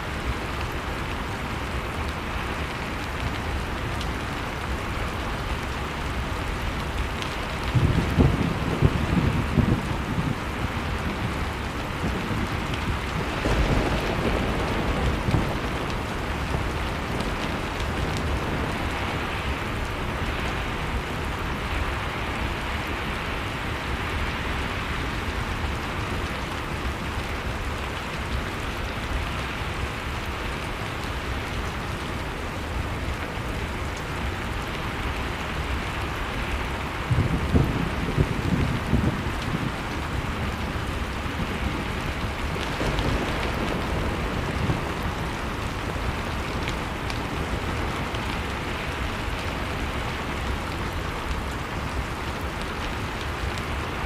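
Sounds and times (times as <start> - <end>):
blizzard wind: 0.0 - 54.0
wood fire crackling: 0.0 - 54.0.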